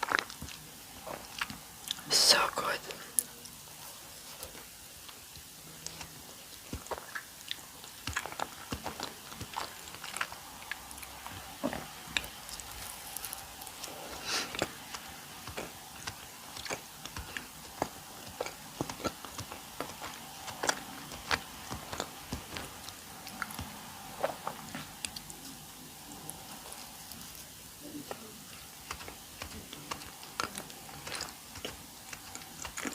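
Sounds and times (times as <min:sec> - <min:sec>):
close chewing and mouth sounds: 0:00.0 - 0:32.9.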